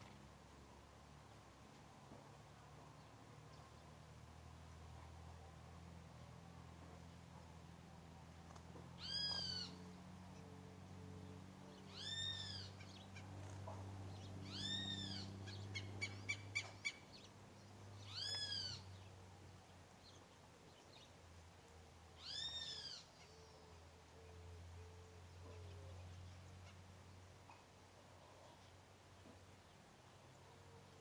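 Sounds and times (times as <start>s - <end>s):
bird calling: 9.0s - 9.8s, 11.9s - 13.6s, 14.4s - 17.3s, 18.0s - 19.0s, 22.2s - 23.7s.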